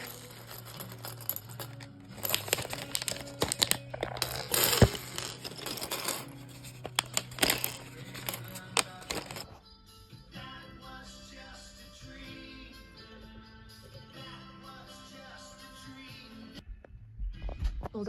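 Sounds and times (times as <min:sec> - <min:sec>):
plastic bags crinkling: 0:00.0 - 0:09.5
plastic bricks clicking and rattling: 0:00.0 - 0:09.6.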